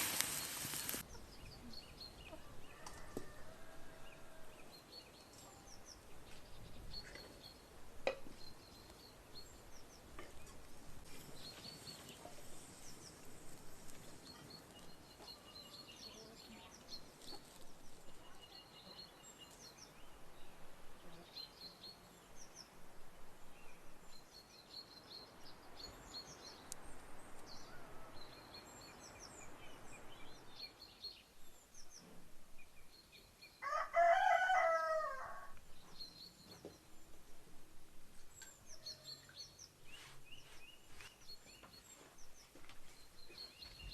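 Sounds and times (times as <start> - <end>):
small birds chirping: 0.0 - 3.1, 4.5 - 22.8, 23.5 - 33.6, 35.6 - 37.5, 38.1 - 43.9
rooster crowing: 2.4 - 4.6, 33.6 - 35.6.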